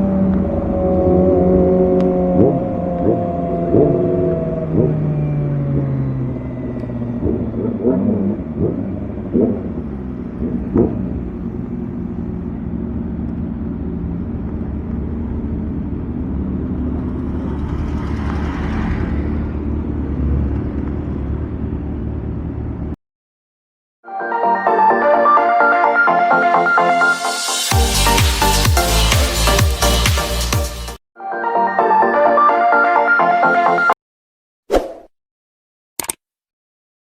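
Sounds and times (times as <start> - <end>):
motorcycle engine running: 6.9 - 22.7
rushing noise: 16.7 - 20.6, 26.6 - 31.0.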